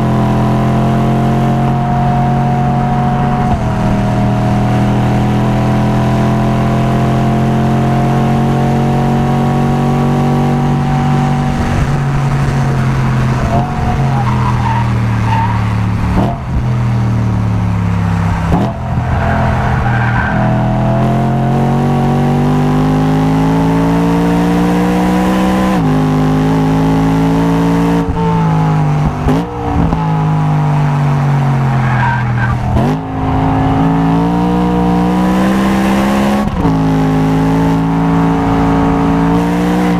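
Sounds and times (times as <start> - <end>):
car engine revving hard: 0.0 - 39.9
tyre squeal: 13.4 - 15.7.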